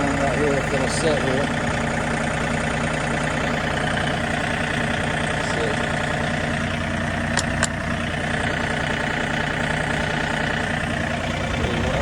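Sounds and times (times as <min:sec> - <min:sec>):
tractor engine idling: 0:00.0 - 0:12.0
sharp metallic clicks: 0:07.2 - 0:08.0.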